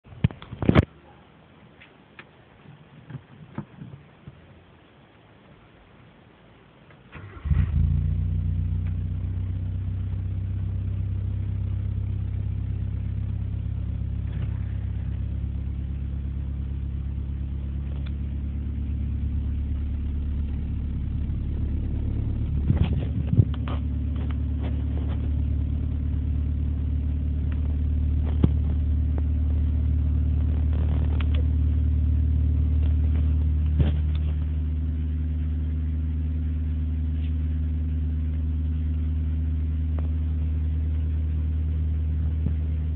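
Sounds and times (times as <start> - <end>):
car engine cranking and idling: 6.9 - 42.9.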